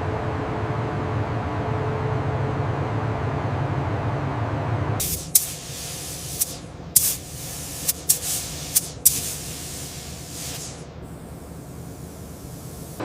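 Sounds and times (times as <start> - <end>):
compressed-air spray hissing: 5.0 - 13.0.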